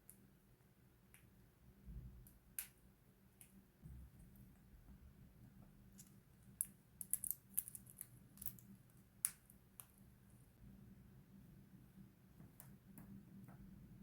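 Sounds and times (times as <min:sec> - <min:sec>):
faint sharp clicks and taps: 0:12.4 - 0:13.7.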